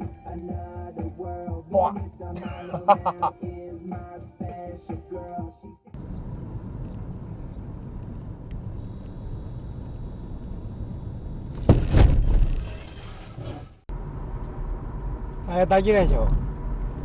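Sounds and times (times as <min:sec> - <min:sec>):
car road rumble: 0:06.0 - 0:12.7, 0:13.6 - 0:17.0
vehicle collision bang: 0:11.5 - 0:13.8.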